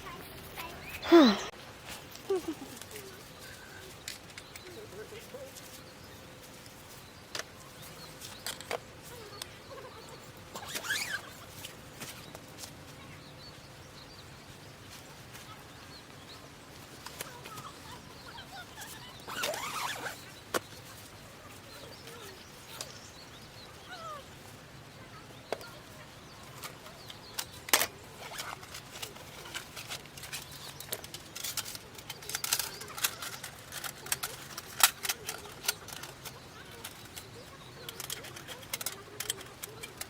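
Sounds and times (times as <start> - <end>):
faint bird chirps: 2.3 - 29.6.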